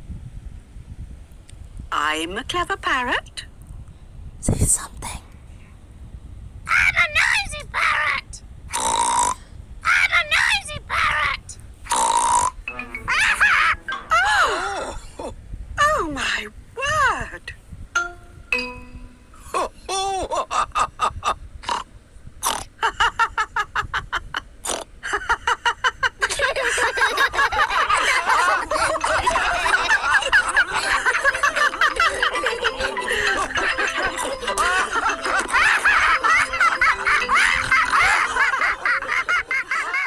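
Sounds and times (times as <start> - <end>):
cartoon characters laughing: 12.9 - 15.3, 25.0 - 40.0.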